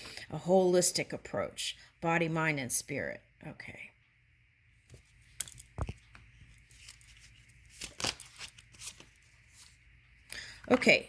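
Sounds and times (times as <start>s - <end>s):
cards snapping and rustling: 6.7s - 9.1s.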